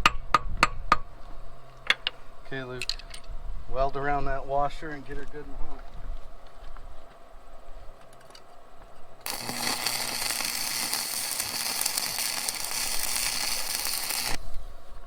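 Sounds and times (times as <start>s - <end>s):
arc welder crackling and hissing: 9.2s - 15.0s.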